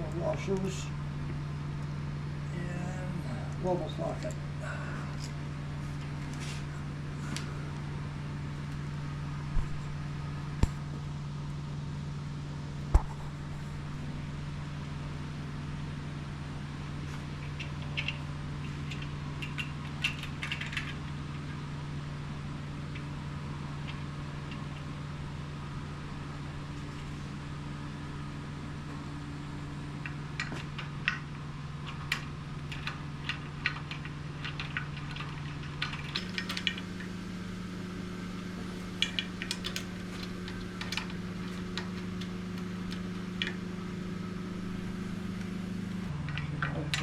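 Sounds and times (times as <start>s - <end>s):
steady low hum: 0.0s - 47.0s
metallic clicks of nuts and washers: 17.4s - 21.1s.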